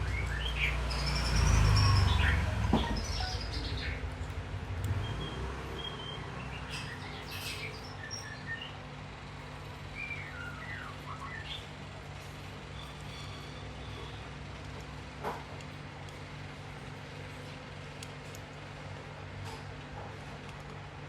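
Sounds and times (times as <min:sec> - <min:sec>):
small birds chirping: 0:00.0 - 0:14.6.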